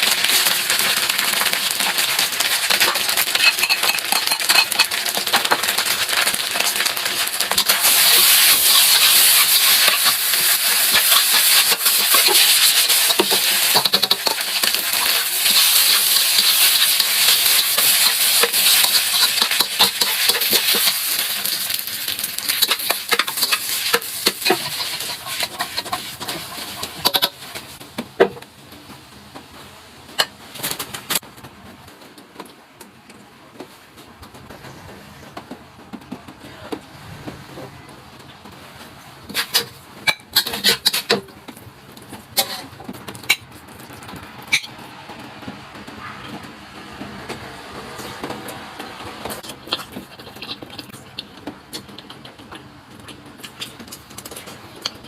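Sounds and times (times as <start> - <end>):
rice sizzling in a pan: 0.0 - 27.8, 39.3 - 41.2
utensil scraping a pan: 1.6 - 27.8, 39.3 - 41.2.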